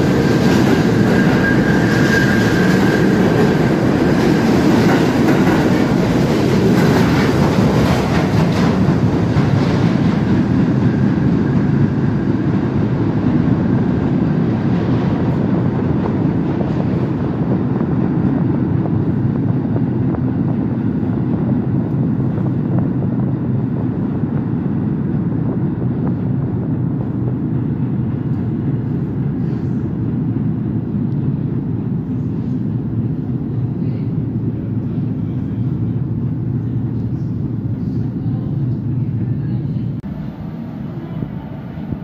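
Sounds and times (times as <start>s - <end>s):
underground train rumble and hum: 0.0s - 42.0s.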